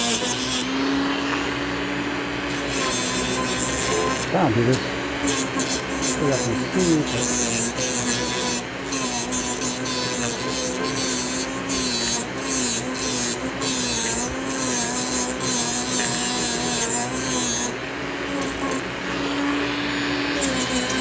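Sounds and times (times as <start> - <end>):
gritty rasping: 0.0 - 1.3, 2.5 - 18.8, 20.3 - 21.0
power tool motor humming: 0.0 - 21.0.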